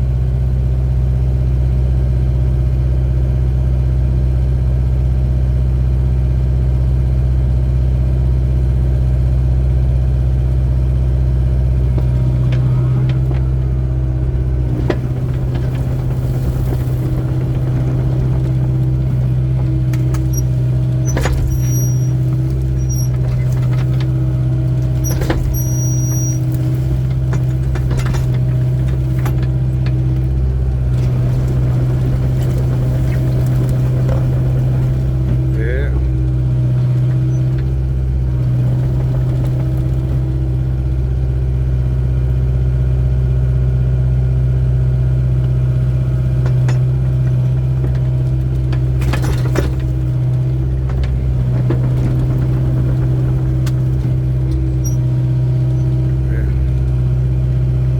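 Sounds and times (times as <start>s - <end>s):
excavator diesel engine running: 0.0s - 57.9s
metal knocks and clanks: 11.9s - 40.4s, 46.2s - 56.3s.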